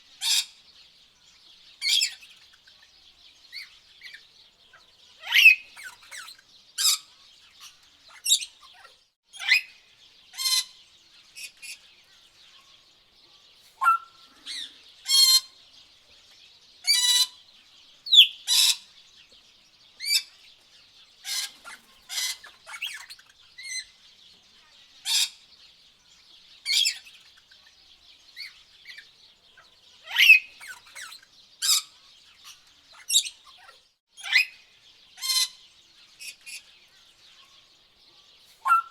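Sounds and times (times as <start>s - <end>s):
birds chirping and squawking: 0.0s - 38.9s.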